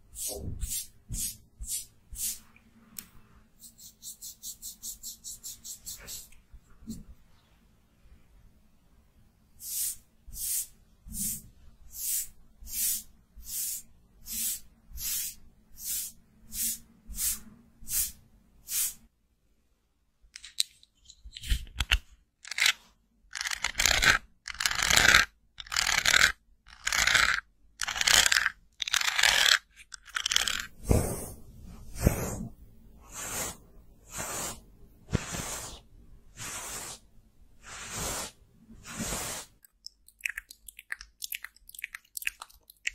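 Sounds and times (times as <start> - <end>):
makeup brush scratching: 3.6 - 6.3, 23.4 - 31.3, 33.1 - 35.8, 36.4 - 37.0, 37.6 - 42.9.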